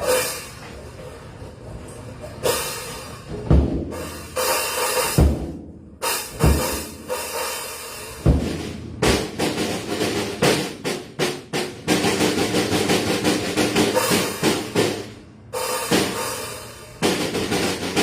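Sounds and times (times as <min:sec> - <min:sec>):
drum kit strikes: 0:02.4 - 0:18.0
bass drum hits: 0:08.2 - 0:13.0
ringing cymbal wash: 0:15.6 - 0:17.0.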